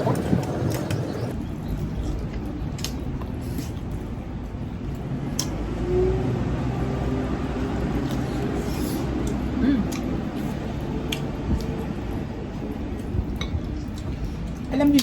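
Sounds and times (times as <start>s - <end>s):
chewing and mouth noises: 8.0s - 15.0s.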